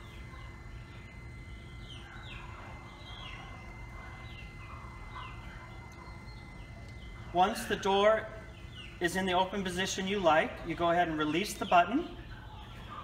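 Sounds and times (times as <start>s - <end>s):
door opener motor humming: 0.0s - 10.0s
small birds chirping: 0.0s - 13.0s.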